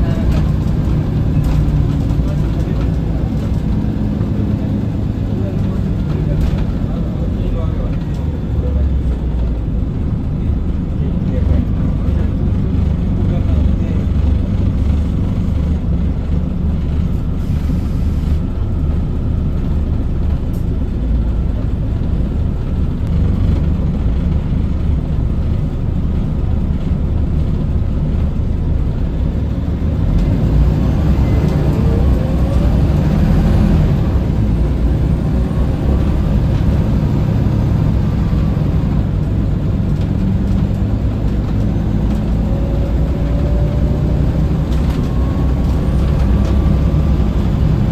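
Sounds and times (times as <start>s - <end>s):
bus diesel engine rumbling: 0.0s - 47.9s
rising drivetrain whine: 0.0s - 47.9s
road noise: 0.0s - 47.9s.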